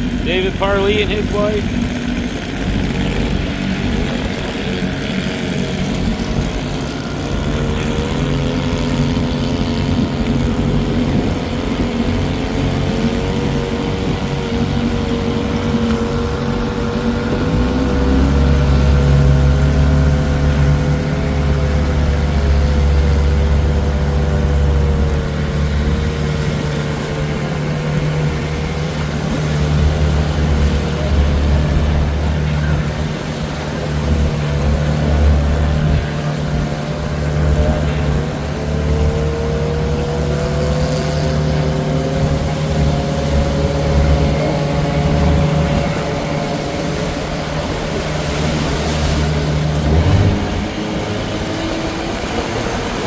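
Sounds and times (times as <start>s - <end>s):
outboard motor running: 0.0s - 53.0s
deep low rumble: 49.7s - 50.9s.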